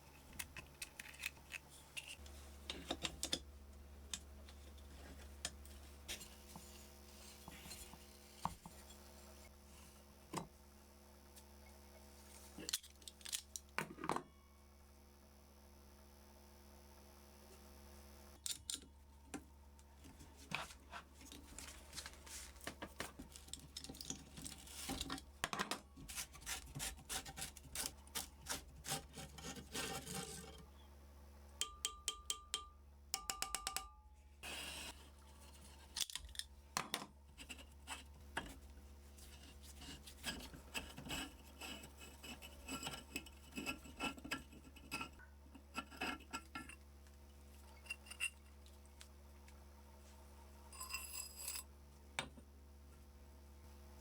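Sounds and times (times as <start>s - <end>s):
scraping on metal: 28.5s - 30.7s.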